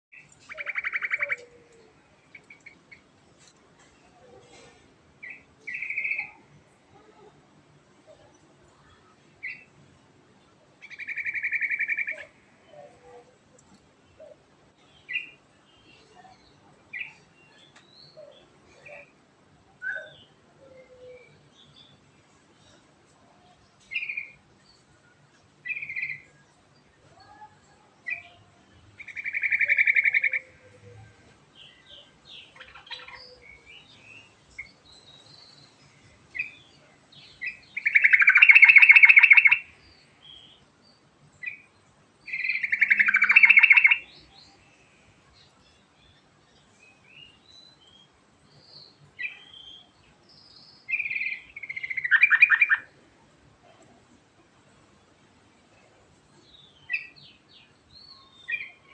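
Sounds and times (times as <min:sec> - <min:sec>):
bird singing bubbling phrases: 0:00.1 - 0:01.5, 0:29.0 - 0:30.6, 0:37.4 - 0:39.9, 0:42.3 - 0:44.3, 0:50.9 - 0:53.0.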